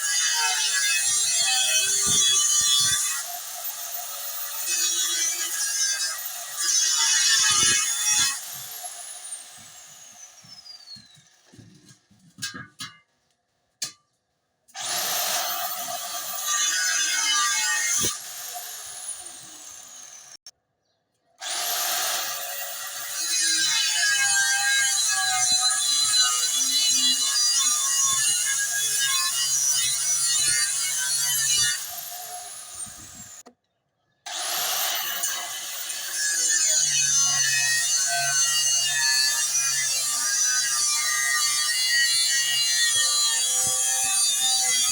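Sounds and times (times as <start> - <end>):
grinder cutting into steel: 0.0 - 12.0, 14.8 - 20.5, 21.4 - 33.4, 34.3 - 44.9
angle grinder whine: 14.8 - 20.4.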